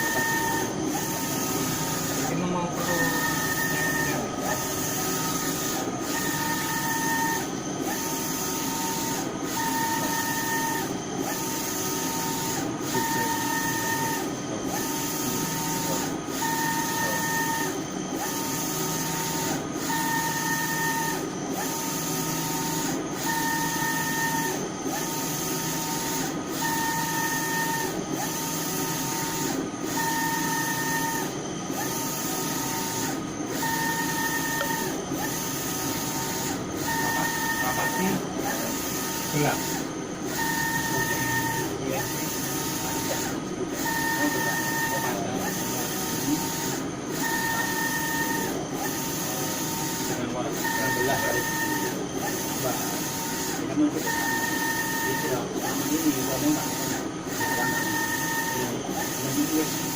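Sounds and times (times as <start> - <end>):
steady machine hum: 0.0 - 16.4.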